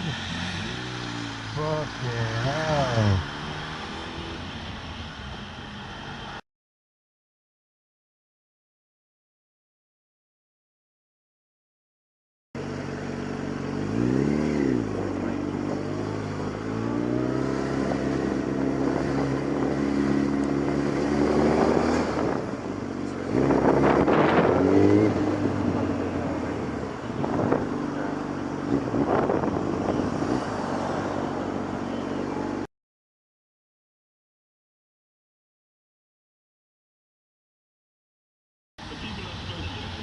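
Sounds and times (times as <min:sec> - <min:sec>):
motorcycle engine revving: 0:00.0 - 0:04.9, 0:12.6 - 0:32.7
wind and road noise: 0:00.0 - 0:06.4, 0:12.6 - 0:32.7, 0:38.8 - 0:40.0.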